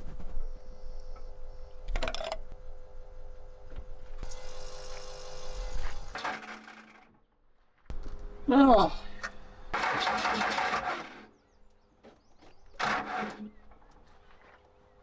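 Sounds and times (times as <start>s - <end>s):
electric fuel pump humming: 0.7s - 7.0s.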